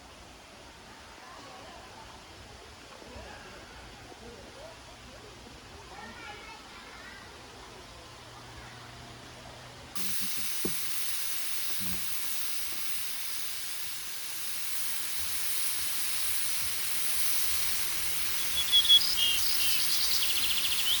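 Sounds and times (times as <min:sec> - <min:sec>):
high-pitched outdoor hiss: 0:10.0 - 0:21.0
bird chirping: 0:14.9 - 0:21.0.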